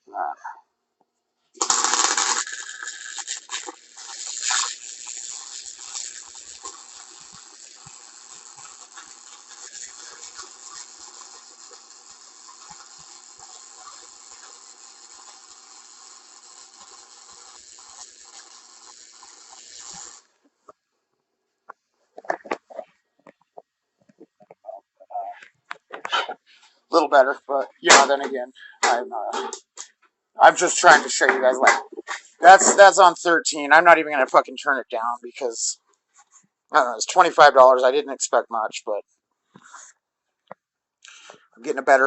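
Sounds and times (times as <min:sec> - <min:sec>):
welding arc crackling and hissing: 0:01.6 - 0:20.3, 0:27.0 - 0:29.8, 0:30.5 - 0:33.3.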